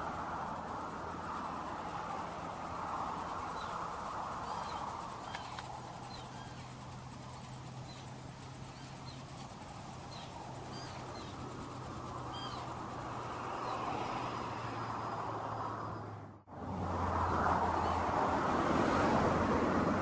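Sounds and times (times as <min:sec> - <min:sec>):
high bird chirps: 0:04.4 - 0:12.8.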